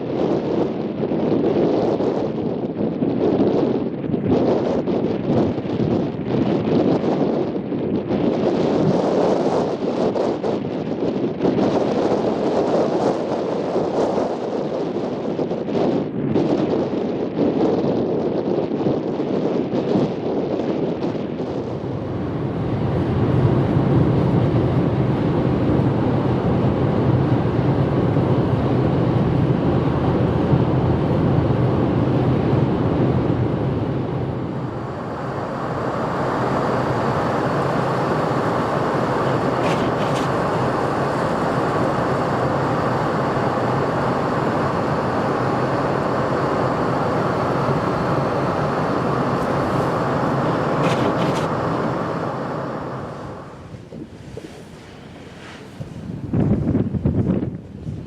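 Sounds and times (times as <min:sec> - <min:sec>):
vehicle road and tyre noise: 0:21.4 - 0:58.0.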